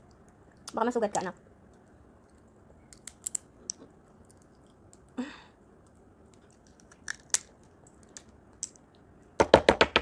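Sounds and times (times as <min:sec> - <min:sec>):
crab shell cracking: 0:02.4 - 0:05.1, 0:06.3 - 0:08.8.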